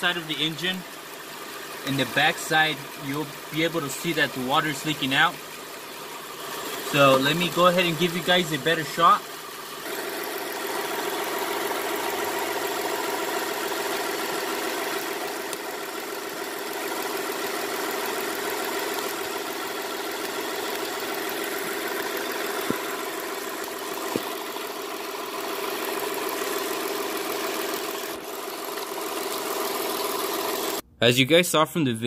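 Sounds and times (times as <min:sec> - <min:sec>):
car engine idling: 0:00.0 - 0:30.8
sharp clicks: 0:15.5 - 0:15.7.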